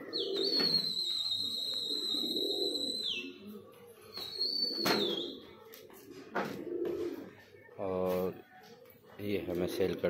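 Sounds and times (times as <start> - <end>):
low dove-like cooing: 0.0 - 7.8
high thin whistle: 0.6 - 3.2.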